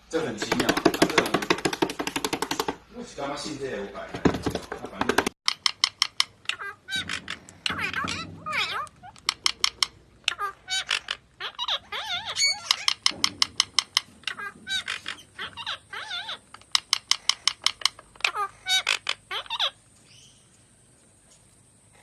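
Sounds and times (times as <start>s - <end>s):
parrot chirping and squawking: 4.6s - 20.4s.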